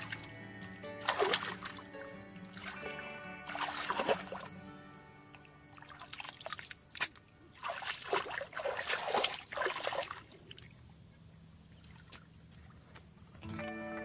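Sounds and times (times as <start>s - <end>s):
water splashing and sloshing: 0.0s - 13.5s.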